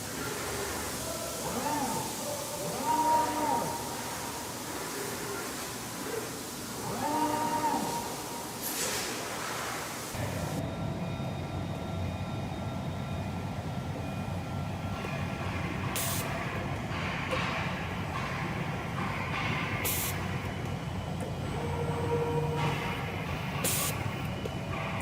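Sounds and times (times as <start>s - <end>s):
compressed air hissing: 0.0s - 10.6s, 15.8s - 16.4s, 19.6s - 20.3s, 22.8s - 24.2s
machine motor hum: 0.0s - 25.0s.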